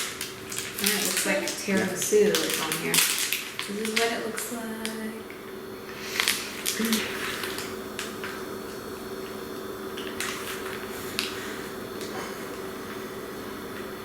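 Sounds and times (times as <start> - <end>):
plastic wrapper crackling: 0.0 - 5.1, 6.1 - 8.4, 10.0 - 11.4
faint steady hum: 0.0 - 14.0.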